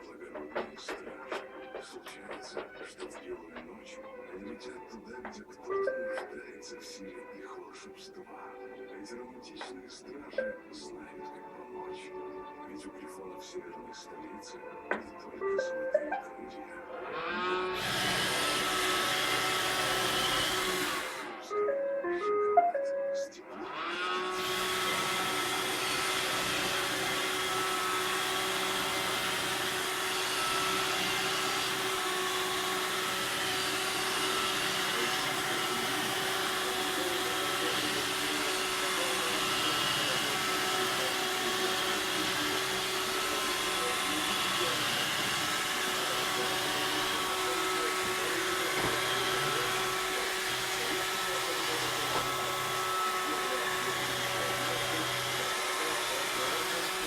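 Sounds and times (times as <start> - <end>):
robot vacuum motor hum: 17.0 - 21.9, 23.6 - 57.0.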